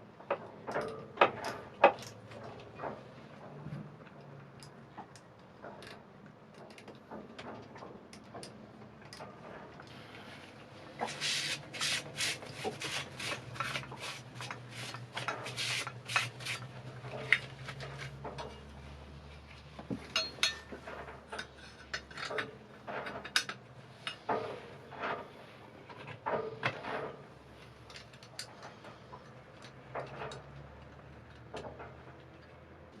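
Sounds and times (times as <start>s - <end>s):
rubbing and scraping: 10.9s - 19.7s.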